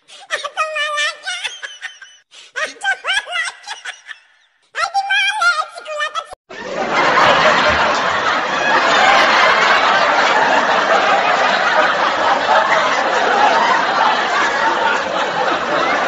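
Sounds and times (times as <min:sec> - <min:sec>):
crowd laughing and chattering: 0:06.5 - 0:16.0.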